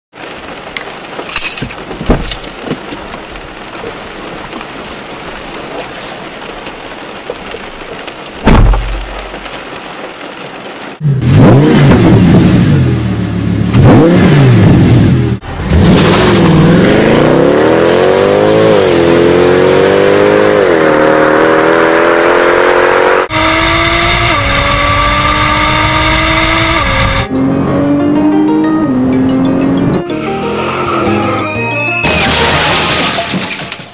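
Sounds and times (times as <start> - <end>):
heavy thump: 1.6 - 2.9, 8.4 - 9.5
car engine drone: 10.3 - 33.5
car engine revving: 11.0 - 30.0.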